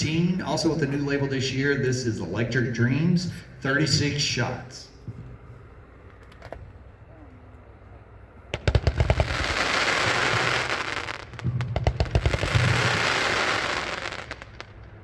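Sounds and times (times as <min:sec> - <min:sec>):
firework launch bangs: 0:08.5 - 0:14.8
firework crackling: 0:08.5 - 0:15.0.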